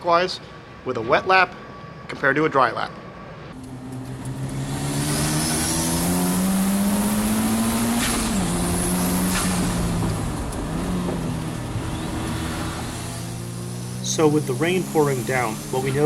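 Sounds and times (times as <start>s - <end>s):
steady rushing noise: 3.2s - 16.0s
car engine accelerating: 3.6s - 16.0s.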